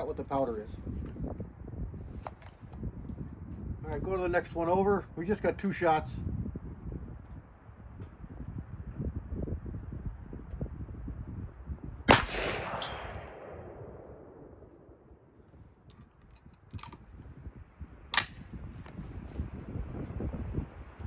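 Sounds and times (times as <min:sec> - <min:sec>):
rifle shots with echo: 0:12.1 - 0:15.4.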